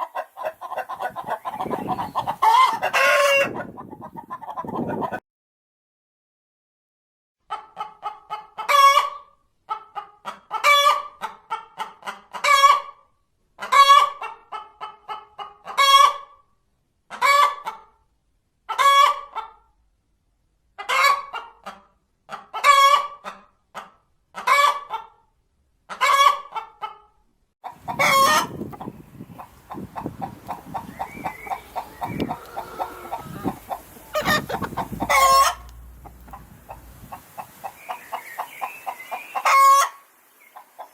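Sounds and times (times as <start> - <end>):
hen cackling: 0.0 - 5.2, 27.6 - 40.9
low rumble: 33.1 - 37.3.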